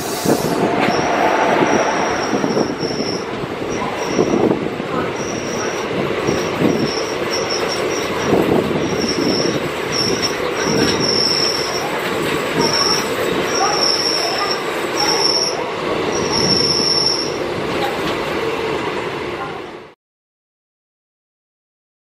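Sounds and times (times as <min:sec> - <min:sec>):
train wheels rumbling and rattling: 0:00.0 - 0:19.6
metal wheel squeals: 0:00.5 - 0:04.5, 0:05.1 - 0:12.0, 0:12.6 - 0:17.4.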